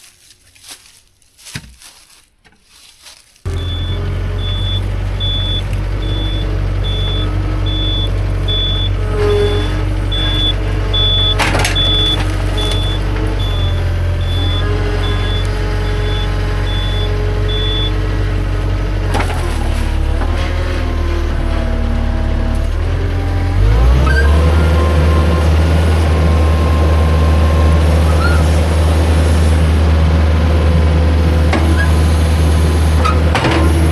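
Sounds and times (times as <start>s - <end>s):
reversing alarm beeping: 3.5s - 18.1s, 23.2s - 28.5s
heavy machine engine running: 3.5s - 33.9s.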